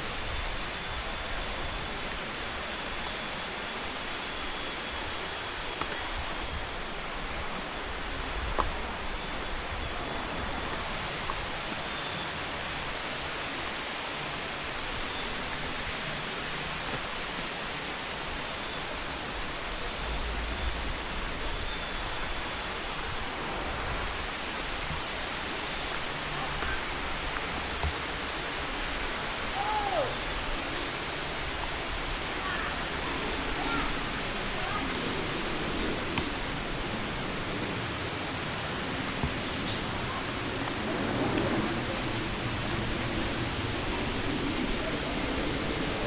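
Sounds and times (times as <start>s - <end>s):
rushing hiss: 0.0s - 46.0s.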